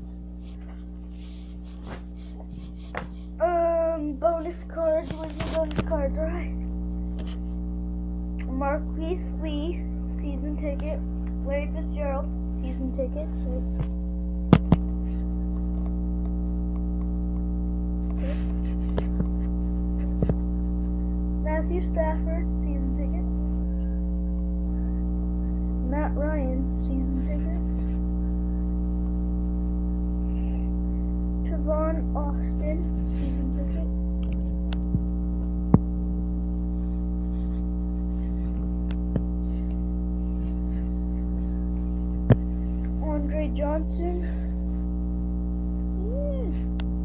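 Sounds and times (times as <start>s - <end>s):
electrical hum: 0.0s - 47.0s
faint rustles: 0.1s - 3.4s.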